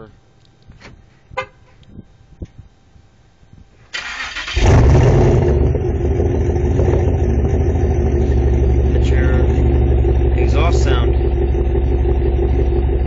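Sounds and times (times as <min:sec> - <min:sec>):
car engine starting and idling: 0:03.9 - 0:13.0.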